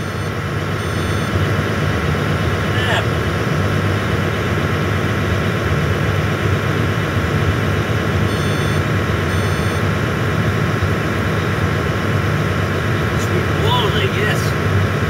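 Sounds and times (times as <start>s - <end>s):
short high beeps: 0.0s - 1.3s, 8.3s - 9.8s
excavator diesel engine running: 0.0s - 15.0s.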